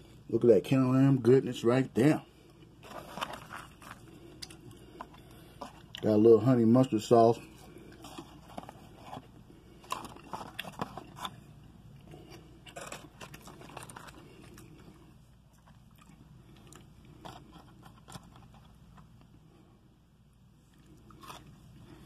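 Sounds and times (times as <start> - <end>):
crunching and chewing: 2.4 - 6.2, 7.4 - 19.4, 20.6 - 22.0.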